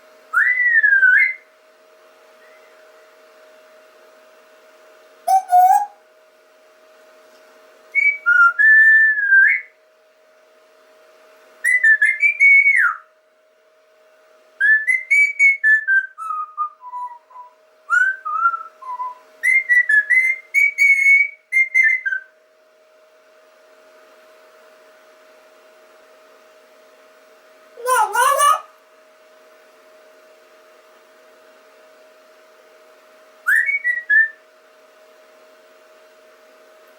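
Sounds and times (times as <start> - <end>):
faint electrical hum: 0.0 - 36.9
person whistling: 5.3 - 5.9.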